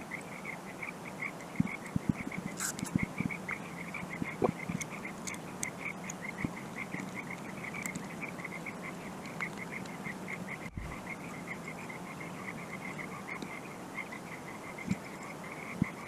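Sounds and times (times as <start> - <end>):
small animal chirping rhythmically: 0.0 - 16.0.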